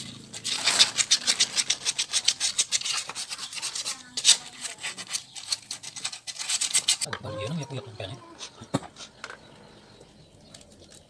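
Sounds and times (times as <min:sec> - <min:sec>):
rubbing or scraping strokes: 0:00.0 - 0:07.1.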